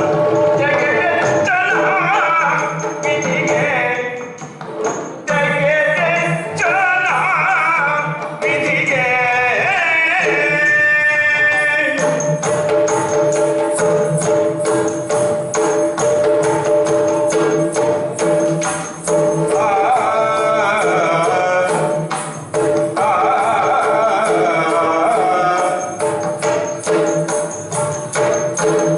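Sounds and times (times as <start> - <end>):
jingling cymbals: 0.0 - 28.9
person singing: 5.3 - 12.3, 19.4 - 22.0, 22.9 - 26.1.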